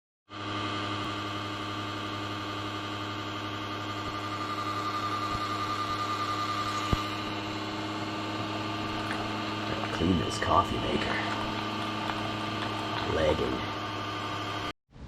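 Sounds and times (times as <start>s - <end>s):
steady machine hum: 0.3s - 14.7s.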